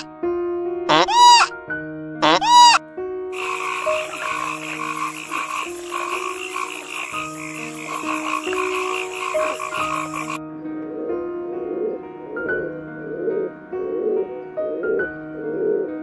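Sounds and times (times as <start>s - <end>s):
frog croaking in rapid pulses: 0.9s - 1.5s, 2.2s - 2.8s, 3.4s - 10.4s.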